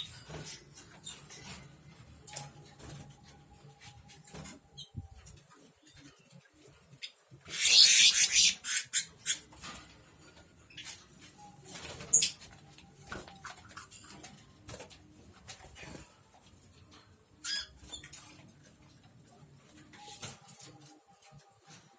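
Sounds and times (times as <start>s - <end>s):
birds rustling in cages: 0.0s - 21.9s
squeaky bird calls: 7.0s - 9.5s.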